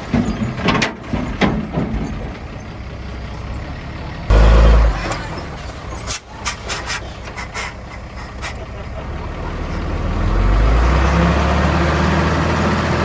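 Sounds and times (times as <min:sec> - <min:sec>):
heavy diesel machinery running: 0:00.0 - 0:13.0.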